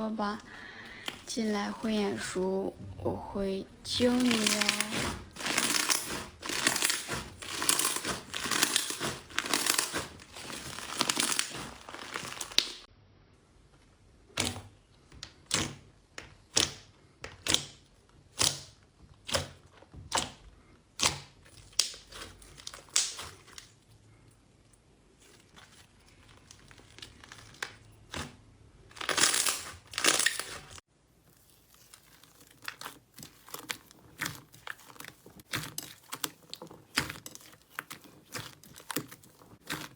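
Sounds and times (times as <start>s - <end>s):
crackling squishes: 0.1s - 12.9s, 14.3s - 24.3s, 25.0s - 39.9s
slime crinkly crackling: 0.2s - 2.6s, 3.4s - 12.9s, 25.2s - 39.9s.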